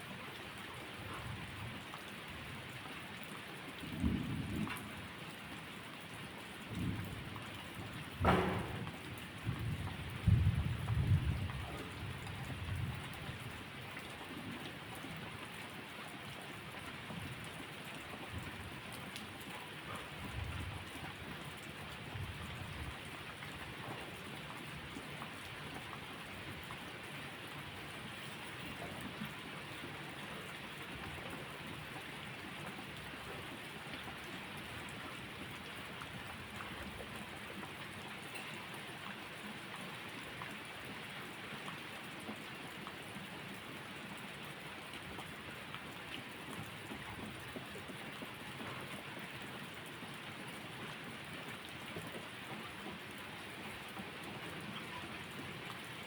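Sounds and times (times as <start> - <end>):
steady rainfall: 0.0 - 56.0
low thunder rumble: 6.7 - 13.0.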